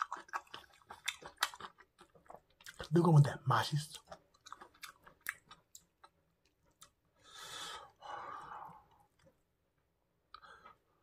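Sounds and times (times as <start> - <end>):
wet chewing: 0.0 - 7.2.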